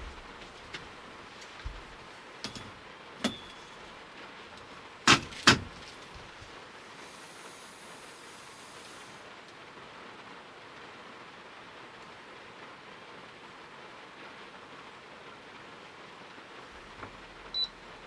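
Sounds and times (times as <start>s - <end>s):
rain hissing on a van: 0.0s - 18.0s.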